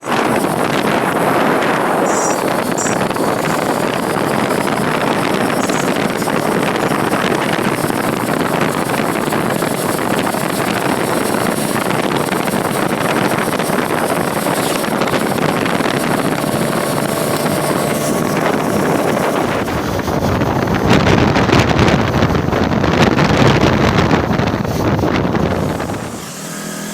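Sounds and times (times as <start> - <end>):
road and vehicle noise: 0.0 - 26.9
wind buffeting microphone: 0.0 - 26.9.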